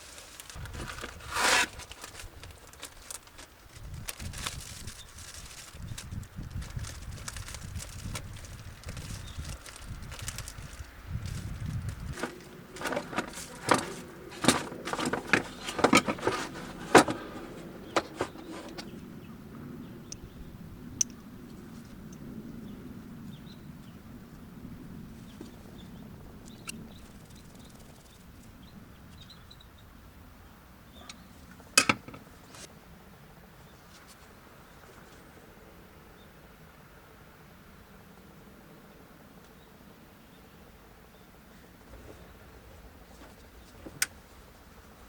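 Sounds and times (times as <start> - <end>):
hard objects clicking and knocking: 31.8 - 32.2.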